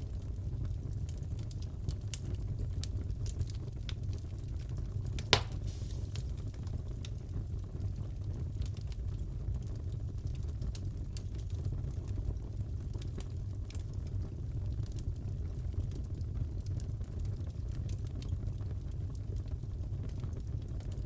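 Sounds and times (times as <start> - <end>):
wood fire crackling: 0.0 - 21.0
sharp pop from fire: 5.2 - 6.7.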